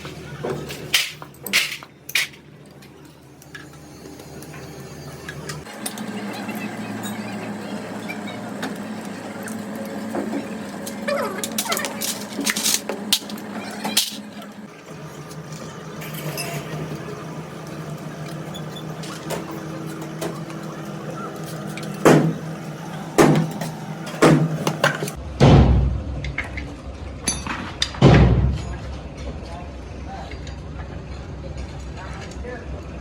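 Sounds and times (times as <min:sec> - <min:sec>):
steady mechanical hum: 0:00.0 - 0:33.0
sharp knocks: 0:22.0 - 0:22.4, 0:23.2 - 0:23.6, 0:24.2 - 0:24.6.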